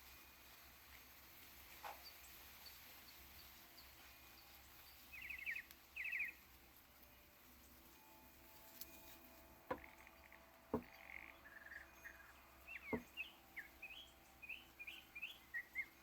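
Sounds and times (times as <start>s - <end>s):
faint birds chirping: 0.0s - 16.0s
light taps: 10.7s - 11.0s.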